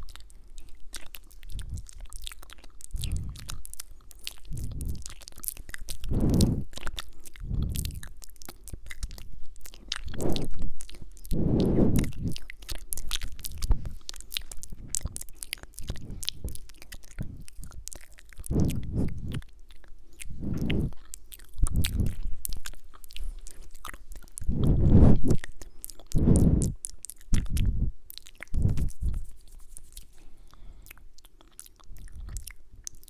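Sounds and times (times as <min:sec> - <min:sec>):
wet mouth clicks and lip smacks: 0:00.0 - 0:33.0
soft breathing: 0:02.8 - 0:08.2, 0:09.7 - 0:31.2.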